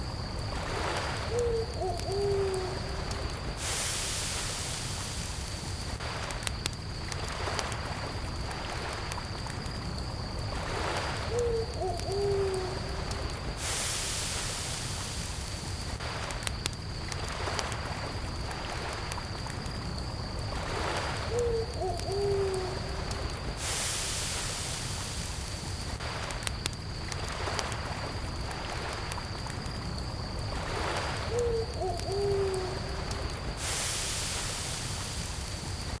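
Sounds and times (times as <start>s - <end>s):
campfire crackling: 0.0s - 36.0s
crickets chirring: 0.0s - 36.0s
owl hooting: 1.3s - 2.9s, 11.3s - 12.9s, 21.3s - 22.9s, 31.3s - 33.0s.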